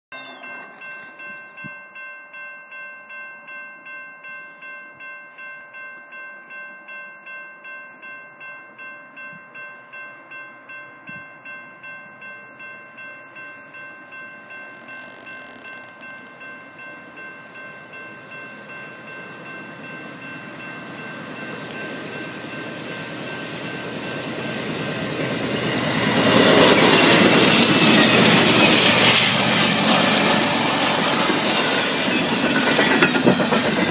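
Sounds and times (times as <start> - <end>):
crossing bell ringing: 0.1 - 33.9
diesel train rumble: 13.6 - 33.9
train wheels rolling on rails: 14.0 - 33.9.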